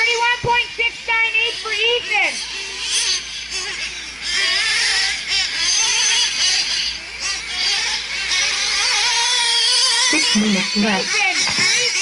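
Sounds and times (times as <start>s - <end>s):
rc truck engines whining: 0.0s - 12.0s.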